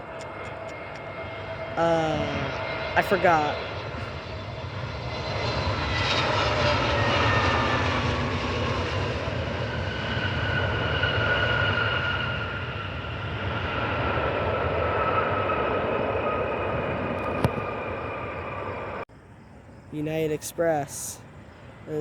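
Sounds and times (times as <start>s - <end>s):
jet airliner passing: 0.0s - 19.1s.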